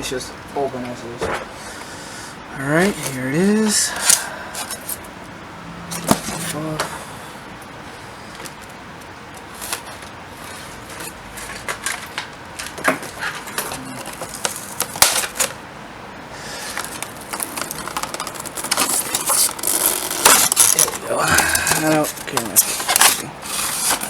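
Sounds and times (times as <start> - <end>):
hands handling cardboard box: 2.7 - 5.1, 5.9 - 7.0, 8.3 - 15.6, 16.6 - 24.0
packaging rustling: 2.7 - 5.1, 8.3 - 15.6, 16.4 - 24.0.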